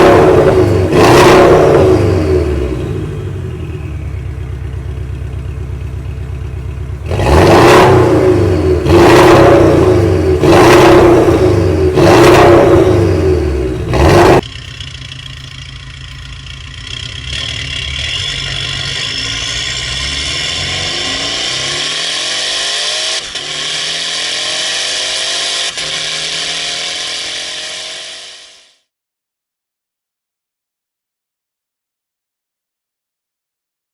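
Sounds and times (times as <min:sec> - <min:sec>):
car engine revving loudly: 0:00.0 - 0:04.2, 0:07.0 - 0:28.7
car engine pulling: 0:00.0 - 0:28.7.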